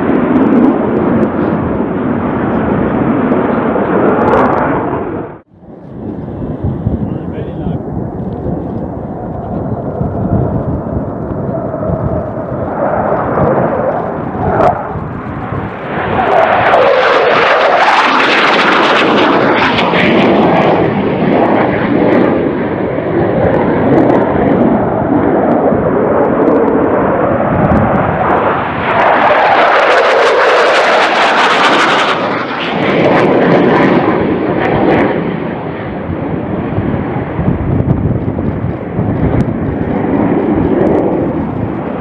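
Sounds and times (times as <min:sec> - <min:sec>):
jet fighter flying overhead: 0:00.0 - 0:42.0.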